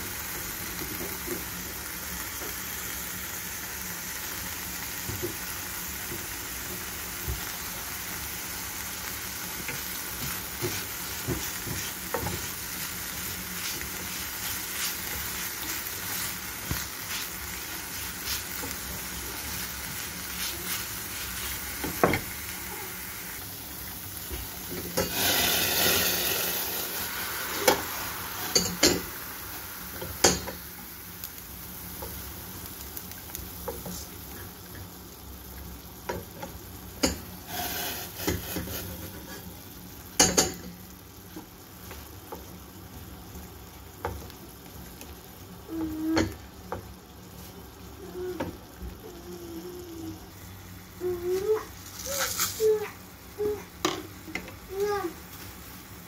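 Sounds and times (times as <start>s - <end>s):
food sizzling in frying pan: 0.0s - 56.0s
spatula stirring and scraping: 9.4s - 23.5s, 24.2s - 26.6s, 37.0s - 39.6s.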